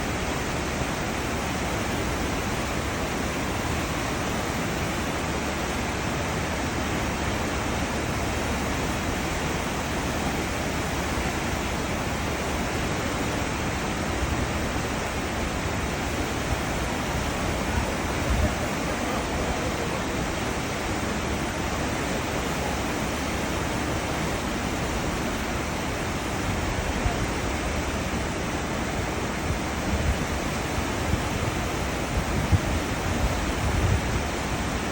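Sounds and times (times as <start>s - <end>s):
churning rushing seawater: 0.0s - 34.9s.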